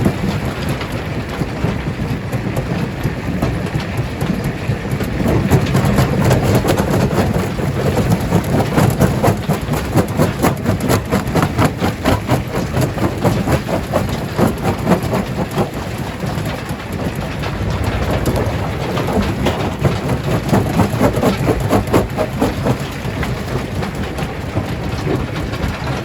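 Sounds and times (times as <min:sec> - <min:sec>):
heavy machine rumble: 0:14.2 - 0:26.0.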